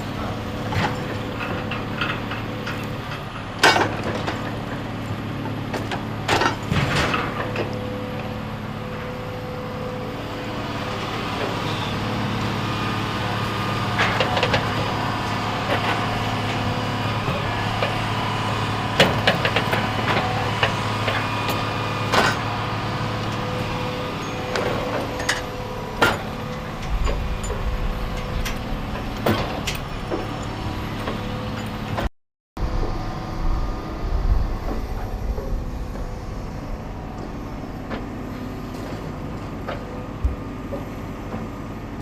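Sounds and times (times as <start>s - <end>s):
heavy machine engine running: 0.0s - 42.0s
sharp knocks and clanks: 24.5s - 30.4s.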